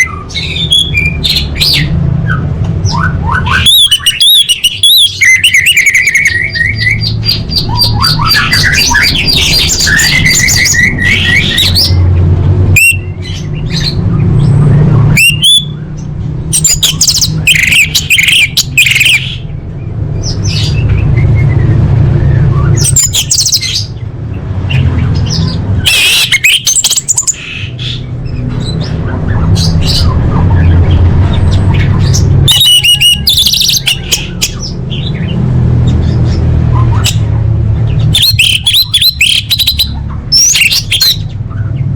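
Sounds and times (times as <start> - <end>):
thrush calling: 0.0 - 19.6, 20.2 - 41.9.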